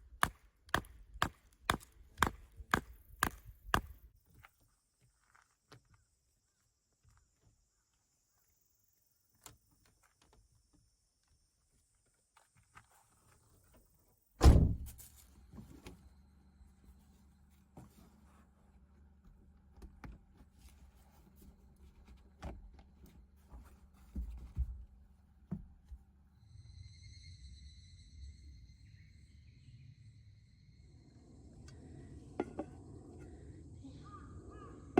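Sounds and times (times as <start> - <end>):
car door shutting: 14.4 - 15.0
low steady hum: 14.4 - 34.9.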